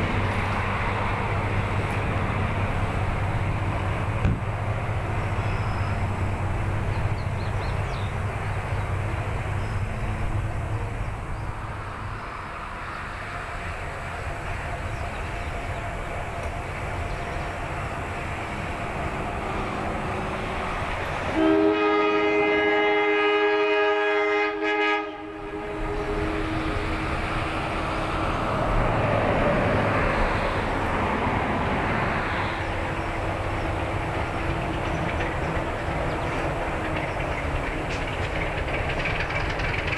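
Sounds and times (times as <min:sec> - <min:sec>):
diesel locomotive running: 0:00.0 - 0:39.9
locomotive horn blast: 0:21.2 - 0:27.6.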